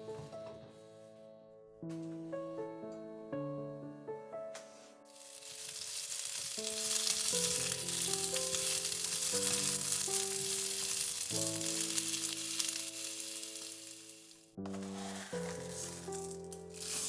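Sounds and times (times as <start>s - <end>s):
soft background music: 0.0s - 17.0s
food sizzling in a pan: 5.1s - 17.0s.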